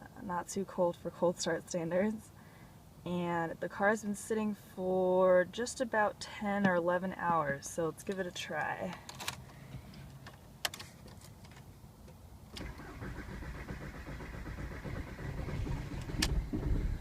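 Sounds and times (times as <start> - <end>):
diesel engine cranking: 12.5 - 17.0.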